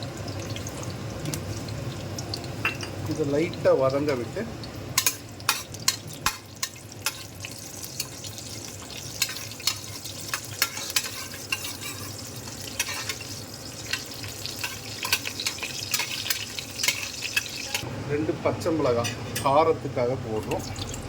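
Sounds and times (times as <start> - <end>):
spices sizzling in hot oil: 0.0 - 17.9, 20.5 - 21.0
spoon scraping a pan: 5.0 - 17.8.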